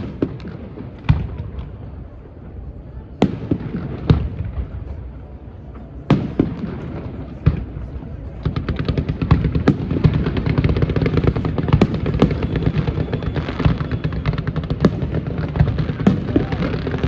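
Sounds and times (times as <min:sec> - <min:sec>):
fireworks bangs and crackles: 0:00.0 - 0:17.0
loud firework bangs: 0:08.4 - 0:17.0.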